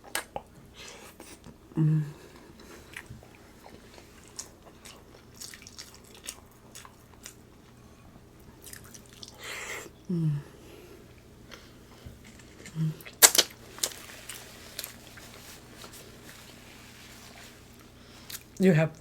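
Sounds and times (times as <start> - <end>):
close chewing mouth clicks: 2.9 - 7.4, 8.6 - 9.4.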